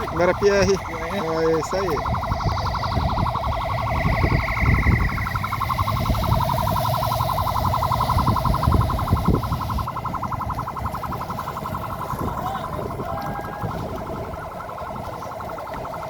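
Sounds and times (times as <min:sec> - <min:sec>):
electronic siren pulsing: 0:00.0 - 0:16.0
low rumble: 0:00.0 - 0:16.0.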